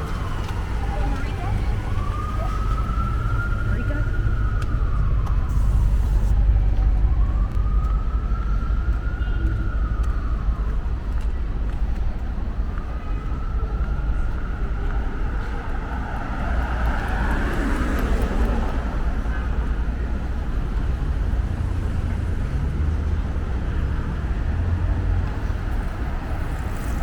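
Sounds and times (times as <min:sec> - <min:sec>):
siren wailing: 0:00.0 - 0:11.2
city traffic rumble: 0:00.0 - 0:27.0.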